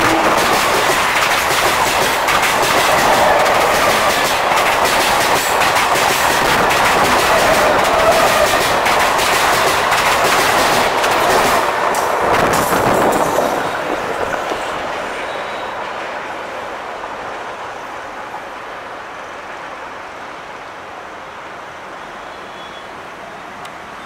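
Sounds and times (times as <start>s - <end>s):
train wheels clattering over rail joints: 0.0s - 15.2s.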